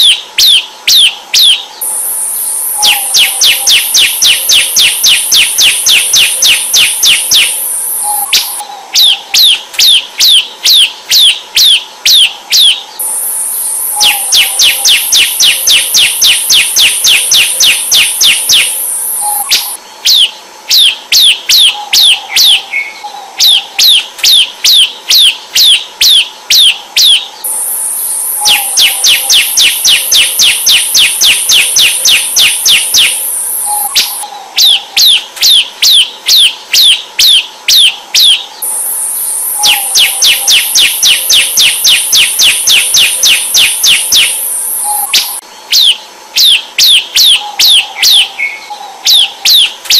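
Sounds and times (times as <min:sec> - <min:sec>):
bird singing downward-slurred notes: 0:01.4 - 0:09.6, 0:12.6 - 0:24.0, 0:27.4 - 0:34.8, 0:38.5 - 0:46.6
high buzzing trill: 0:01.8 - 0:08.6, 0:12.2 - 0:19.8, 0:27.4 - 0:34.2, 0:38.6 - 0:45.5.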